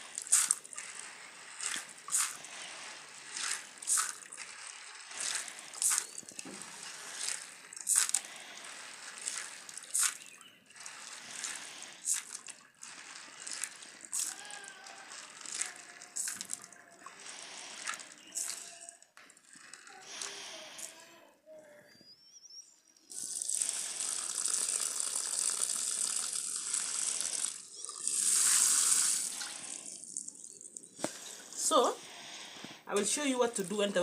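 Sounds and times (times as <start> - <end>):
water sloshing: 0.0 - 14.4
beans scraping together: 0.0 - 20.9, 23.1 - 34.0.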